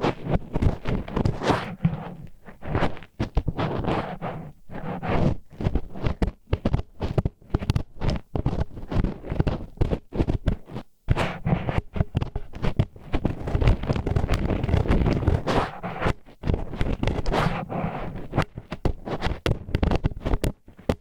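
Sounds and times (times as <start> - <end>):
wooden chopsticks scraping microphone: 0.0 - 6.3, 11.1 - 20.2.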